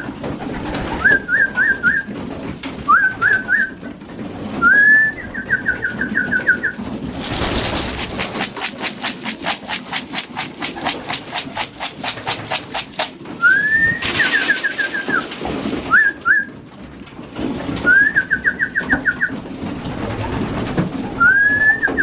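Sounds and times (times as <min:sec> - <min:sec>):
pigeons cooing: 0:00.0 - 0:16.6
fast even rasping rhythm: 0:07.0 - 0:13.4.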